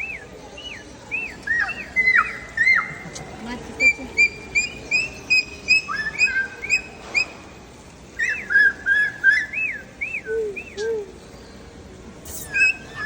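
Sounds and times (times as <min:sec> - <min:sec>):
cockatoo chirps and whistles: 0:04.2 - 0:07.4, 0:08.2 - 0:11.1, 0:12.2 - 0:13.0.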